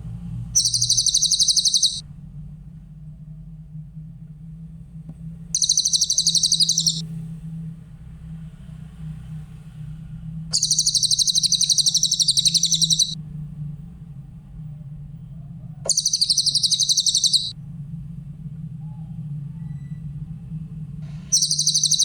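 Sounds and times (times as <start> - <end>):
steady low hum: 0.0 - 8.0, 10.0 - 22.0
bird singing high trills: 0.6 - 2.0, 5.6 - 7.0, 10.5 - 13.2, 15.9 - 17.5, 21.3 - 22.0.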